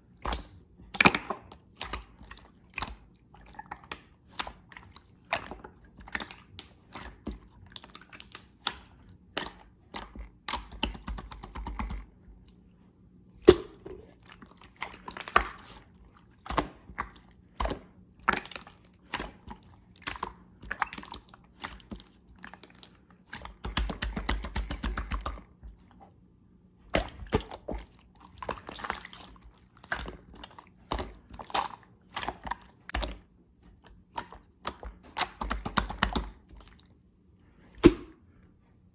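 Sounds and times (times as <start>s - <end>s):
slime squishing: 0.0s - 38.5s
air bubble pops: 13.4s - 14.1s, 37.8s - 38.2s.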